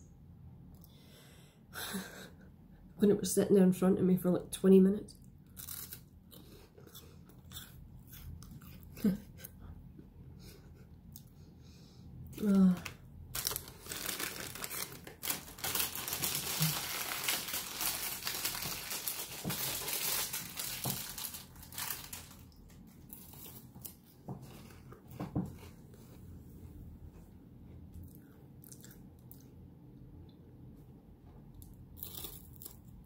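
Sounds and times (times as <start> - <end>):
snack packet crinkling: 12.8 - 24.1.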